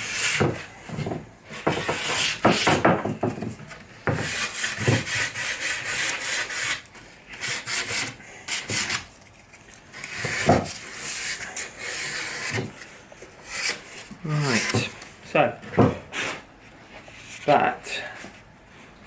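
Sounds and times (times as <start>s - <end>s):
sandpaper rubbing on wood: 4.2s - 6.8s, 10.0s - 12.6s.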